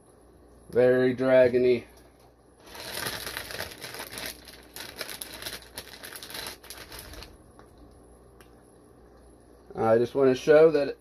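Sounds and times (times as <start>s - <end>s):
plastic bags crinkling: 2.6s - 7.8s.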